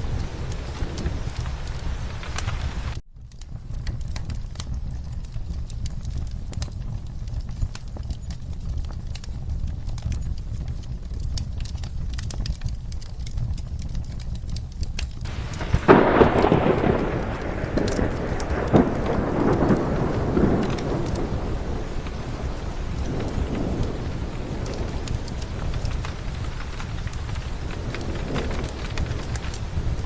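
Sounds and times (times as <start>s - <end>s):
rolling thunderclap: 0.0s - 3.0s, 15.2s - 30.0s
crackling fire: 0.0s - 30.0s
steady rain: 0.0s - 30.0s.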